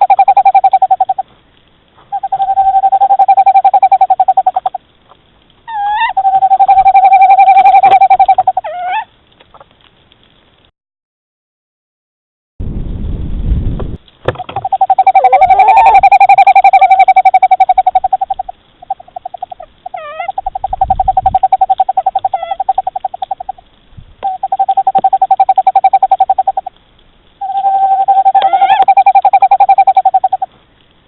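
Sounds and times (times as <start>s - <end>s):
owl call pulsed trill: 0.0s - 1.3s, 2.1s - 4.8s, 5.7s - 9.1s, 14.4s - 23.6s, 24.2s - 26.7s, 27.4s - 30.5s.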